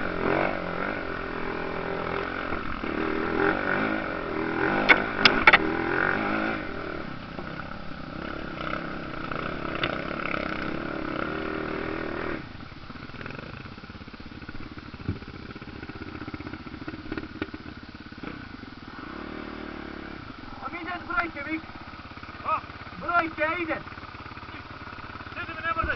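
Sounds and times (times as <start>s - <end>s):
motorcycle engines running: 0.0s - 25.9s
sharp clicks: 4.8s - 5.7s.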